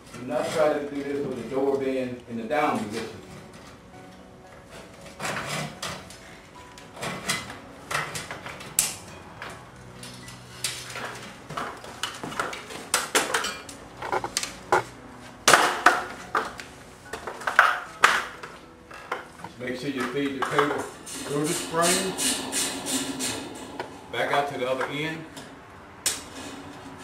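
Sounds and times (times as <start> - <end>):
steel cable clinking and rattling: 7.0 - 14.8.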